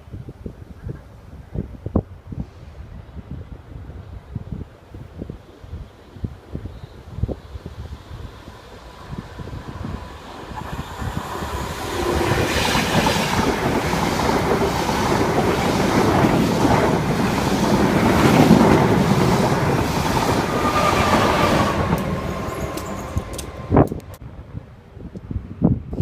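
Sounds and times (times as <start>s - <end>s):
train passing at speed: 5.9s - 24.8s
thin high tone: 20.1s - 24.2s.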